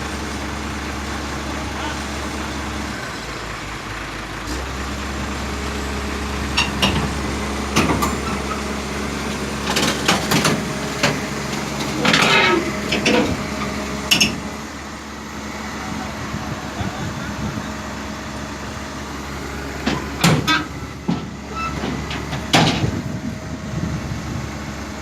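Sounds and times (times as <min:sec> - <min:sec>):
excavator diesel engine running: 0:00.0 - 0:25.0
sharp clanks and knocks: 0:06.5 - 0:08.6, 0:09.6 - 0:13.4, 0:14.1 - 0:14.5, 0:19.8 - 0:23.1.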